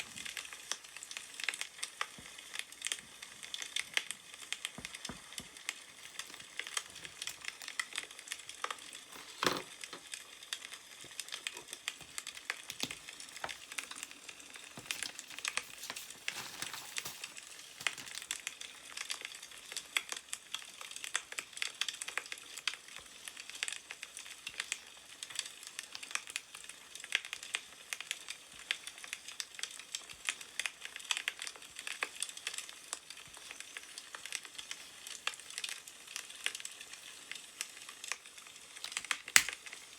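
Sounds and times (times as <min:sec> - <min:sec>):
burning wood crackling: 0:00.0 - 0:39.9
paper rustling: 0:04.8 - 0:08.0, 0:08.6 - 0:10.0, 0:11.1 - 0:18.5.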